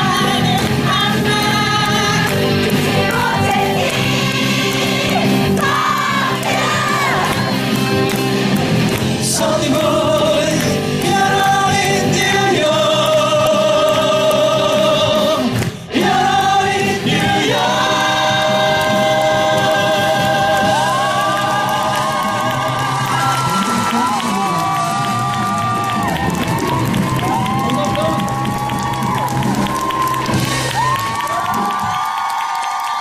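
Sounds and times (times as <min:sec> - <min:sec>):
musical accompaniment: 0:00.0 - 0:33.0
male voices singing in harmony: 0:09.2 - 0:23.7.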